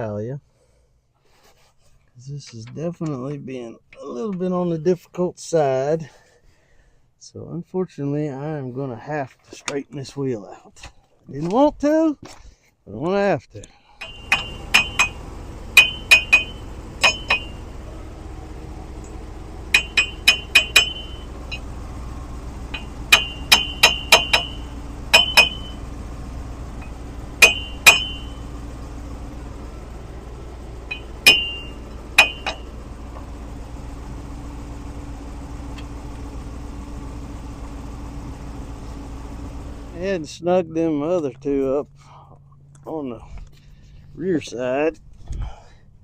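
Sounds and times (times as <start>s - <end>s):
steady low hum: 13.7s - 46.0s.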